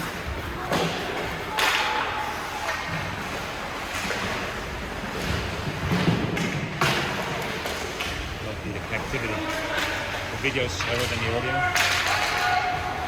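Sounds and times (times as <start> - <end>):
knocks of sticks and puck: 0.0 - 3.2, 5.2 - 8.4, 9.1 - 13.0.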